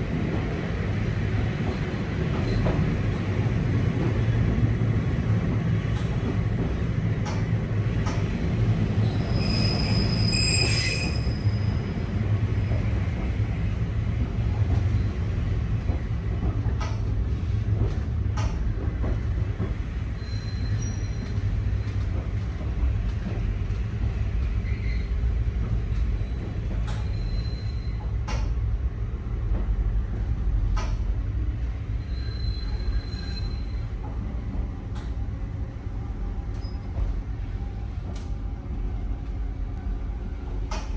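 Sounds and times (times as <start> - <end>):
train car low rumble: 0.0 - 40.9
high-pitched wheel squeal: 9.0 - 11.8, 32.0 - 33.8
clicks from rails: 15.8 - 17.1, 17.8 - 19.8, 28.2 - 28.6, 30.7 - 31.0.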